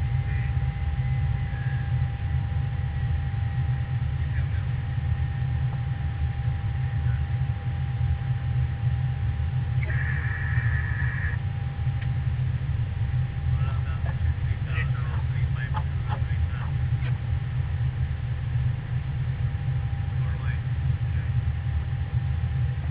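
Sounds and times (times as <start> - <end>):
airliner engines rumbling: 0.0 - 22.9
thin hum: 5.0 - 20.0.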